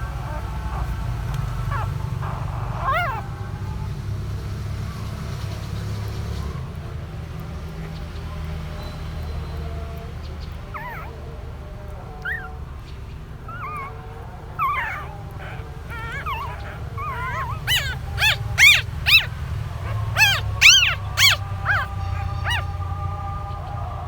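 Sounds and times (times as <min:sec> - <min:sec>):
puppies whimpering and squealing: 0:00.0 - 0:05.1, 0:10.2 - 0:24.0.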